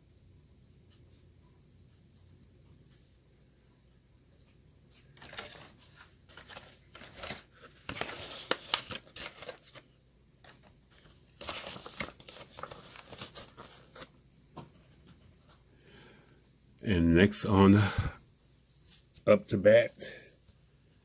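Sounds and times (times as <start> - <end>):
plastic packaging crinkling: 5.1 - 14.2.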